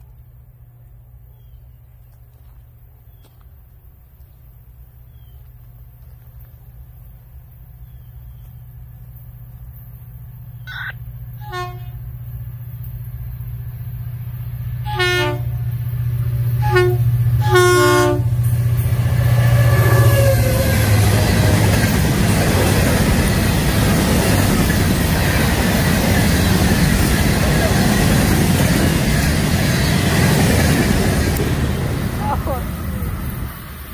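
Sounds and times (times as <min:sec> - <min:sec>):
diesel locomotive engine drone: 0:00.0 - 0:33.9
short train horn blasts: 0:11.3 - 0:12.2, 0:14.7 - 0:15.8, 0:16.4 - 0:21.5
wheels rolling on rails: 0:18.5 - 0:33.9.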